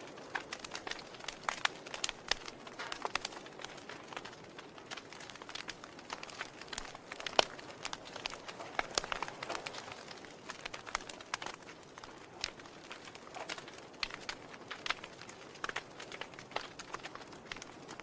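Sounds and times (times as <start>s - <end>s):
fire hissing: 0.0s - 18.0s
wood fire crackling and popping: 0.0s - 18.0s.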